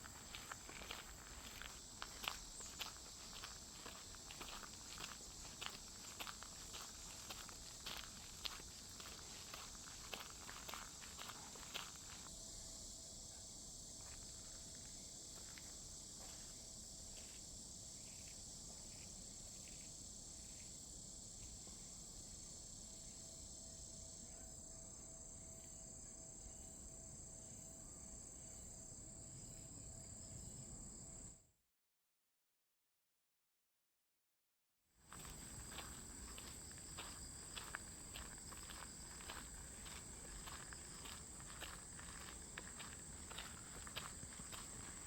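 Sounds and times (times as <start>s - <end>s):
footsteps: 0.0s - 12.3s, 35.1s - 45.0s
insects trilling: 0.0s - 31.2s, 35.1s - 45.0s.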